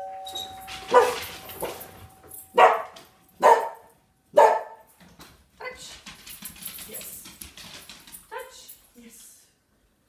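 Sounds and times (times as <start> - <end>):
doorbell chime: 0.0 - 2.8
dogs barking: 0.8 - 4.8
dog yipping: 0.9 - 1.8, 2.6 - 4.8.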